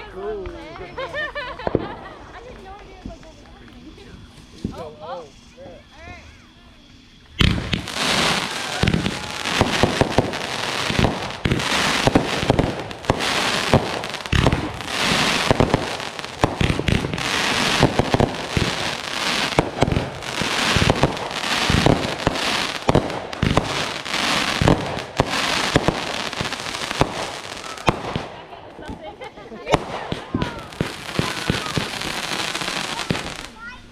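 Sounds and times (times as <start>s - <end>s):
fireworks crackling: 0.0s - 33.9s
fireworks shells bursting: 7.2s - 29.1s, 29.7s - 33.6s.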